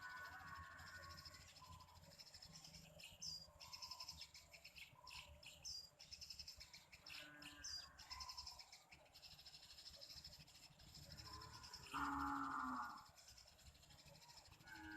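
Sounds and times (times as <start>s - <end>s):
faint high bird chirps: 0.0s - 14.9s
high insect buzz: 11.3s - 13.1s.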